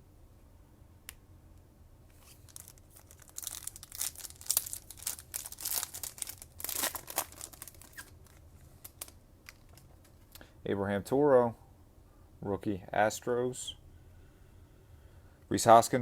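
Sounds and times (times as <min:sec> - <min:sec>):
foil wrapper tearing and crinkling: 0:02.2 - 0:09.9.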